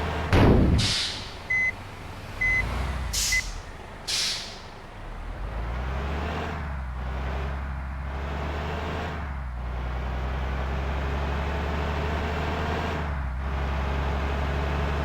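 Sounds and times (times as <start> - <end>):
bus engine idling: 0.0 - 5.8
air brakes hissing: 0.6 - 1.7, 2.9 - 4.8
short high beeps: 1.5 - 1.7.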